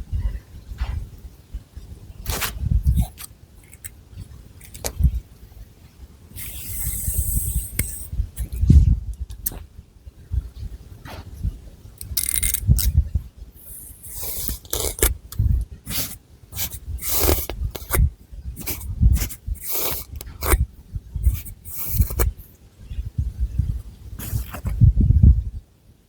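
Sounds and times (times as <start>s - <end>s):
soft low thuds: 8.6s - 9.2s.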